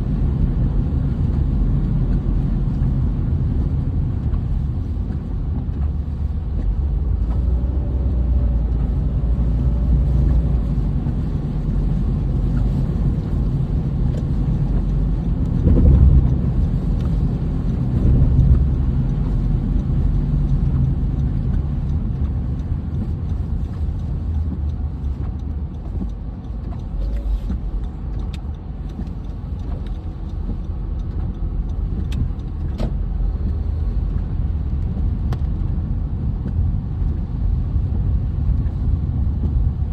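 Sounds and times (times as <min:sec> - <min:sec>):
car road and engine rumble: 0:00.0 - 0:39.9
sharp ticks: 0:10.1 - 0:32.9.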